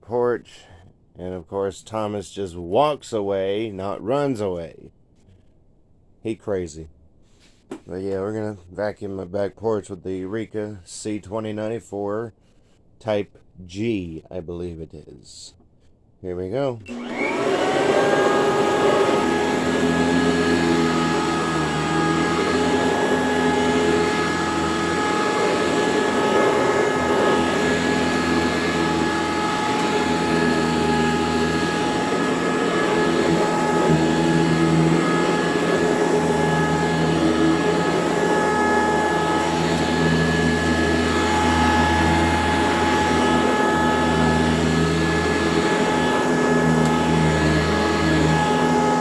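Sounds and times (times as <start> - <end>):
vacuum cleaner whining: 16.8 - 49.0.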